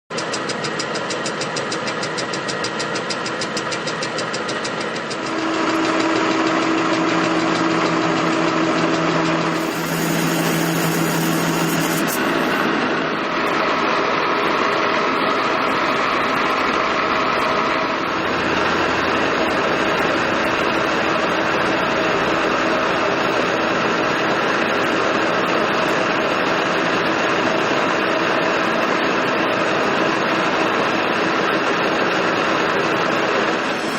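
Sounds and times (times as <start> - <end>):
lathe running with gear whine: 0.2 - 33.9.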